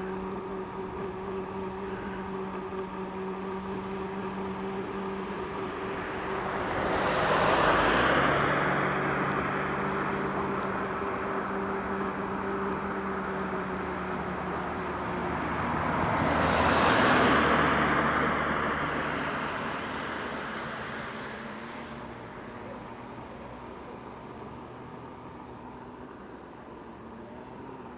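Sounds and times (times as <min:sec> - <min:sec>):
steady low hum: 0:00.0 - 0:06.8
cars passing by: 0:00.0 - 0:27.9.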